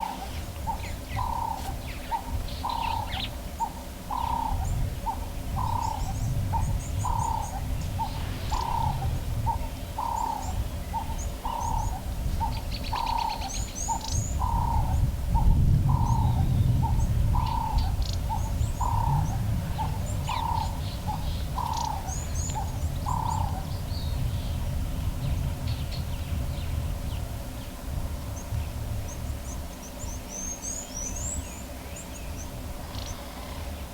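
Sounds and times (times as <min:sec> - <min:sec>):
bird cooing: 0:00.0 - 0:24.1
small birds chirping: 0:00.0 - 0:33.9
wind rumbling on microphone: 0:00.0 - 0:33.9.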